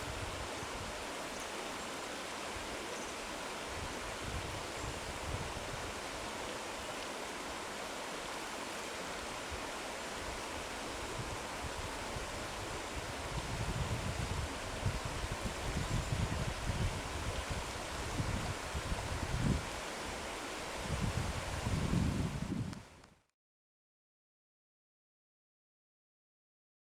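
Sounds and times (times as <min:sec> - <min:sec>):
wind buffeting microphone: 0:11.1 - 0:19.8, 0:20.8 - 0:22.9.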